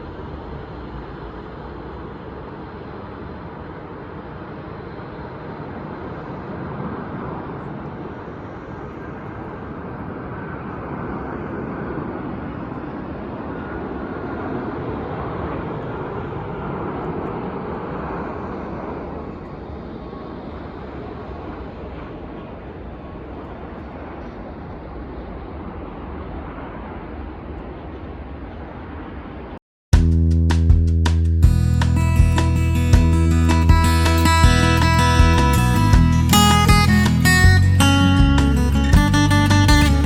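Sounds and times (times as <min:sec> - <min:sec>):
jet engines roaring: 0:00.0 - 0:29.6.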